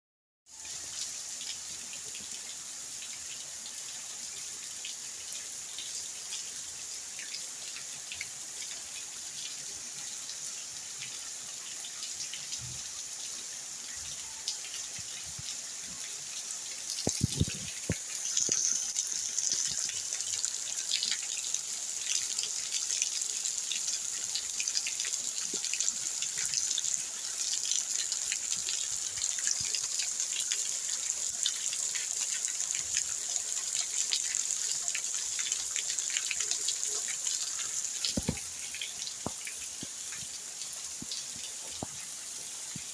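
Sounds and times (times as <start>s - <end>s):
rain falling: 0.7s - 42.9s.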